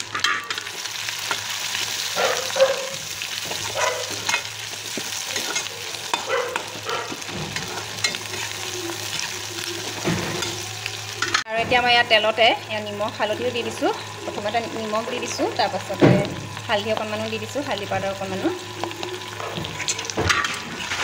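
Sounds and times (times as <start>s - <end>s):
food sizzling in hot oil: 0.0s - 21.0s
metal spatula scraping a pan: 5.2s - 10.6s, 18.8s - 21.0s.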